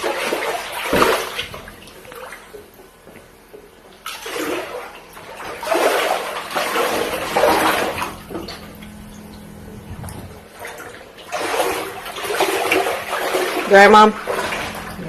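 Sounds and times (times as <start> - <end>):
water sloshing and splashing: 0.0 - 15.0
faint low hum: 1.0 - 15.0.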